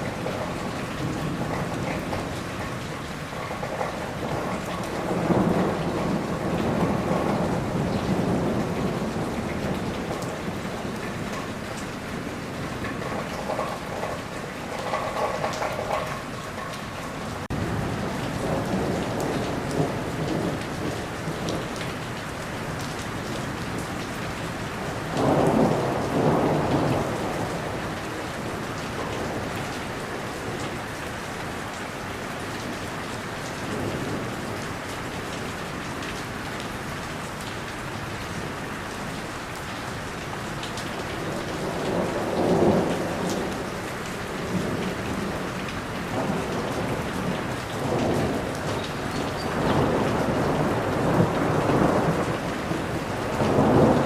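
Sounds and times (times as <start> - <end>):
rolling thunder: 0.0 - 16.8, 17.4 - 22.0, 24.8 - 30.8, 41.2 - 54.0
steady rain: 0.0 - 54.0.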